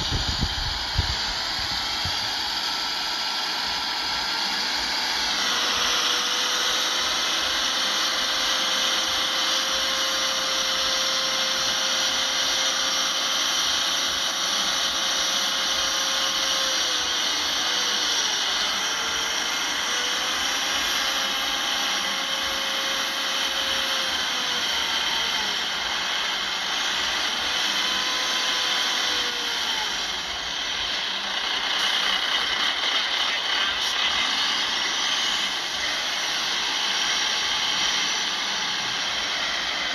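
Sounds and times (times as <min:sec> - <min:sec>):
heavy machinery engine whining: 0:00.0 - 0:39.9.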